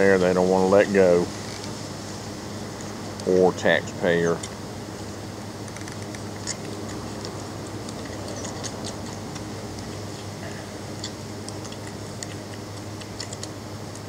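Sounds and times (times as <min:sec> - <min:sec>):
steady low hum: 0:00.0 - 0:14.0
puppies suckling smacking clicks: 0:05.6 - 0:14.0.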